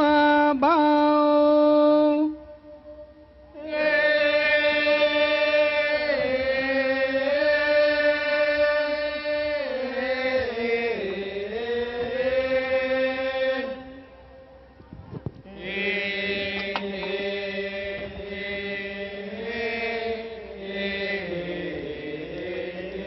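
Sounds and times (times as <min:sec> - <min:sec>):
person chanting long held notes: 0:00.0 - 0:23.0.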